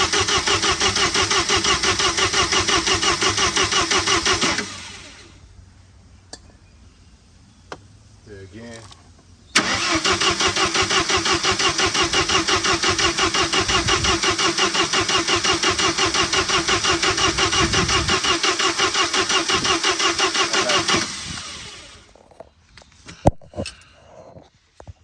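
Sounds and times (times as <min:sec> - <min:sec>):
engine cranking by starter: 0:00.0 - 0:05.4, 0:09.6 - 0:22.2
engine spinning down: 0:00.0 - 0:05.4, 0:09.6 - 0:22.2.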